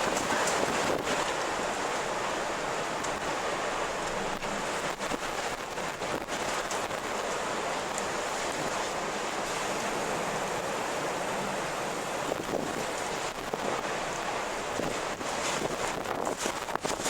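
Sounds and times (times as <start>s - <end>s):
faint crackles: 0.0s - 2.1s, 4.0s - 9.9s, 12.3s - 17.0s.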